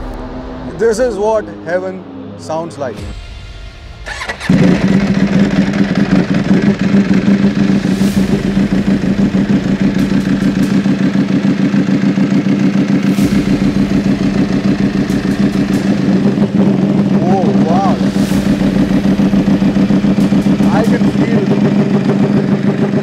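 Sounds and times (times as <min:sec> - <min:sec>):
motorcycle engine running: 0:04.0 - 0:23.0.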